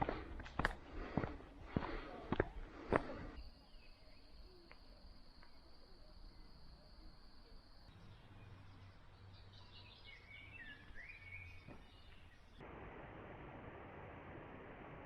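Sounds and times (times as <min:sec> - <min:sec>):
quiet outdoor ambience: 0:00.0 - 0:15.0
birds chirping and whistling: 0:07.9 - 0:12.6.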